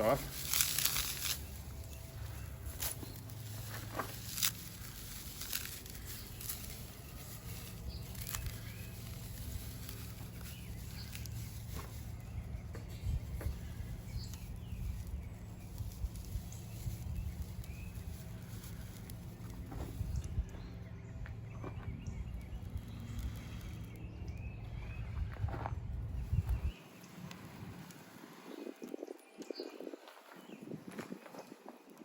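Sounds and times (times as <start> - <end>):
dry plants crushed by hand: 0.0 - 20.4
steady low rumble: 0.0 - 28.9.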